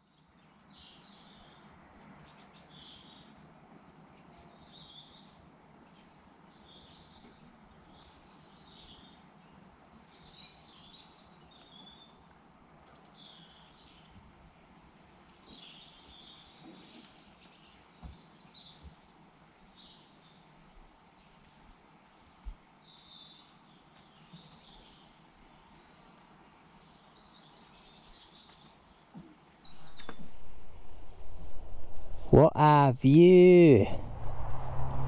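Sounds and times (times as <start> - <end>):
low background hiss: 17.2 - 35.0
birds chirping and trilling: 29.4 - 32.4.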